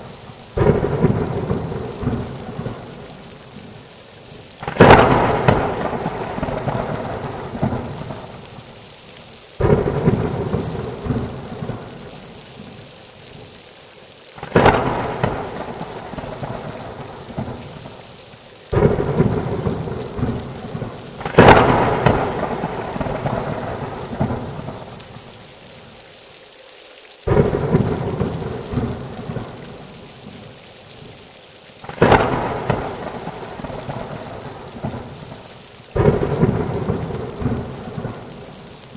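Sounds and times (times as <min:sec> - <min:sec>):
steady rain falling: 0:00.0 - 0:38.9
thunder claps and rumbles: 0:00.6 - 0:03.7, 0:04.6 - 0:08.4, 0:09.6 - 0:12.2, 0:14.4 - 0:18.0, 0:18.7 - 0:25.2, 0:27.3 - 0:29.9, 0:31.9 - 0:35.4, 0:36.0 - 0:38.6.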